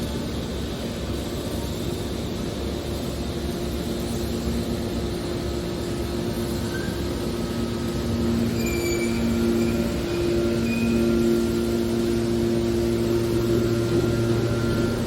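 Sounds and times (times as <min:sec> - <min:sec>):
baler machine hum: 0:03.8 - 0:15.0
faint squeaks: 0:08.2 - 0:11.6.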